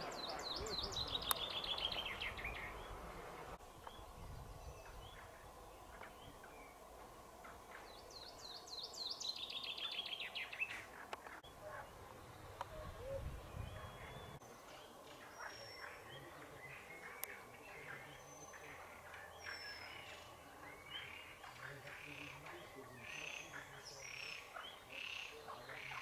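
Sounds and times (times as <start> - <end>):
songbird trilling: 0.0 - 3.0, 7.8 - 10.8
faint open air hum: 0.0 - 26.0.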